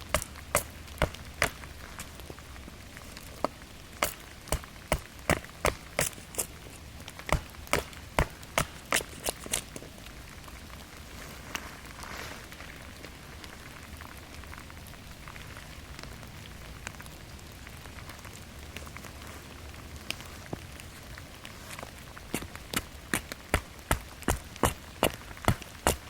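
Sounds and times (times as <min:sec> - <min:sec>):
rain pattering in forest: 0:00.0 - 0:26.0.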